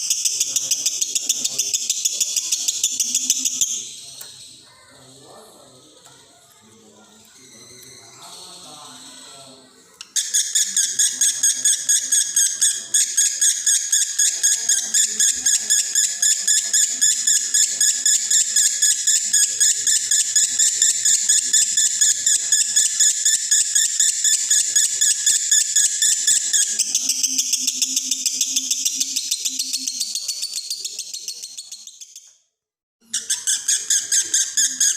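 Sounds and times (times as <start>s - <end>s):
lovebird chattering high chirps: 0.0s - 4.6s, 10.0s - 32.2s, 33.0s - 34.9s.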